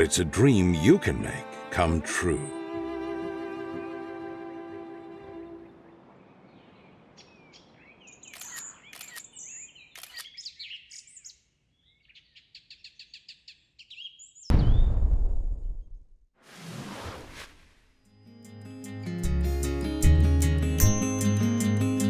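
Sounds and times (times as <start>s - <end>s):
songbirds chirping and whistling: 5.6s - 14.5s.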